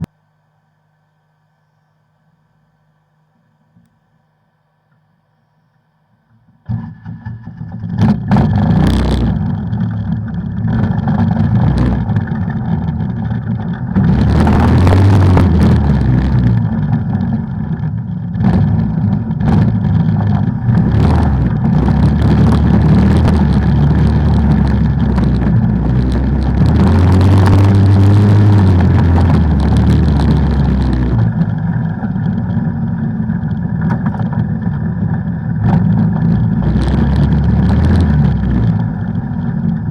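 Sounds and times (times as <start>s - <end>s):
off-road vehicle engine revving: 6.7s - 39.9s
constant rushing noise: 9.1s - 39.9s.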